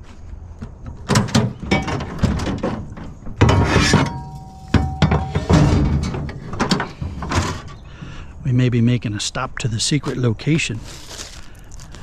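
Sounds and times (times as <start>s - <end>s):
scrap knocking and clinking: 0.9s - 7.9s.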